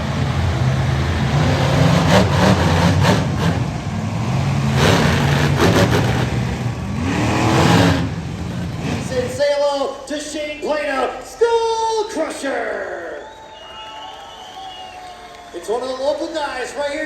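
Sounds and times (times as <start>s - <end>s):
truck engine revving: 0.0s - 10.0s.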